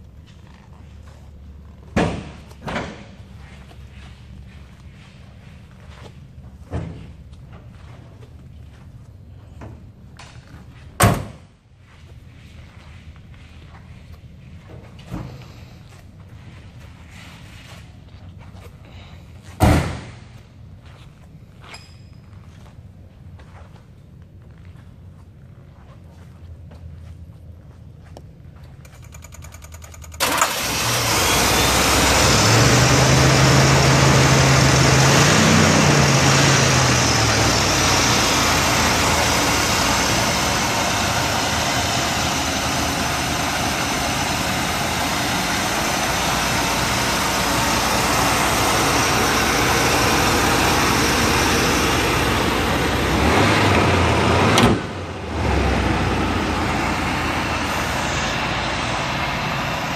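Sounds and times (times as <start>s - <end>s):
car engine starting and idling: 28.5s - 59.9s.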